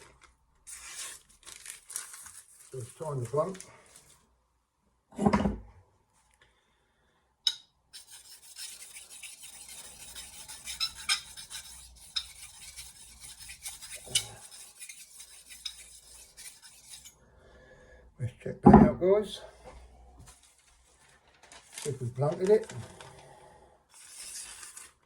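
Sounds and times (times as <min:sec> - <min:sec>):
knife edge scraping hard surface: 0:08.0 - 0:17.2.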